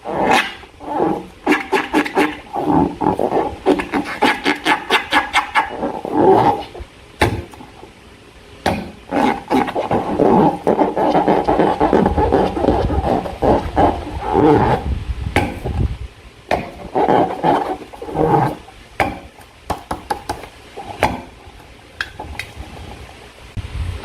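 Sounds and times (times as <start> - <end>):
slime squelching: 8.7 - 14.9.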